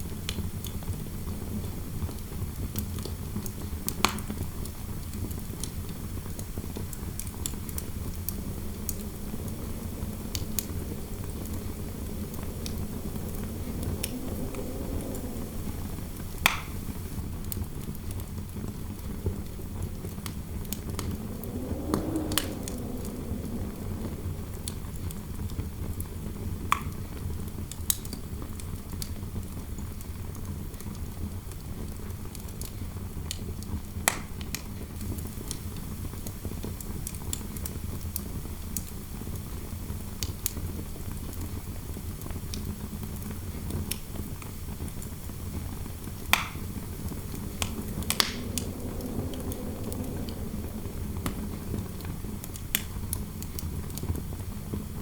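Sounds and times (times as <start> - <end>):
wind howling: 6.2 - 26.6, 45.4 - 55.0
wood fire crackling and popping: 6.7 - 17.4, 19.8 - 25.3, 45.0 - 55.0.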